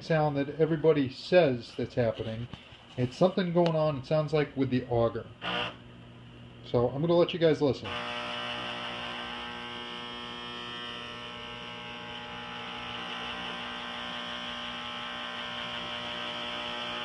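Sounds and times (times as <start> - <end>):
pellet stove auger humming: 7.8 - 17.0.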